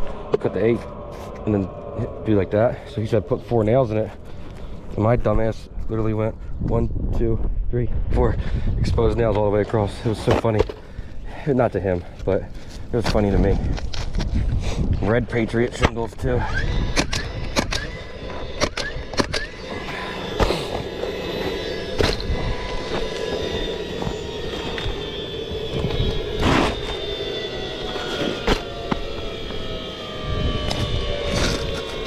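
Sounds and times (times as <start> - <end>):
mechanical drone: 0.0 - 11.1, 12.4 - 32.0.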